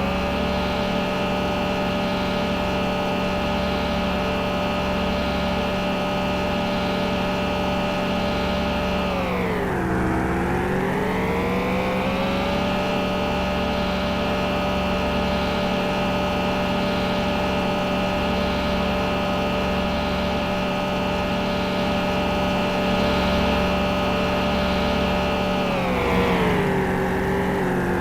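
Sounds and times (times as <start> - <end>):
engine running: 0.0 - 28.0.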